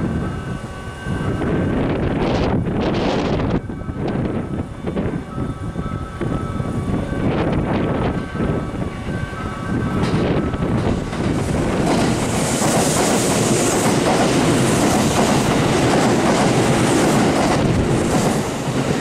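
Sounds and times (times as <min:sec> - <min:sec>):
train wheel and running noise: 0:00.0 - 0:19.0
rail-joint clatter: 0:09.6 - 0:19.0.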